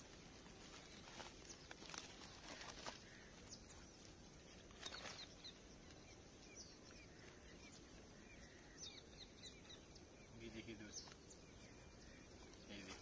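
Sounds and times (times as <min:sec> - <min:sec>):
faint bird chirps: 0:00.0 - 0:13.0
plastic sack rustling: 0:00.5 - 0:03.3.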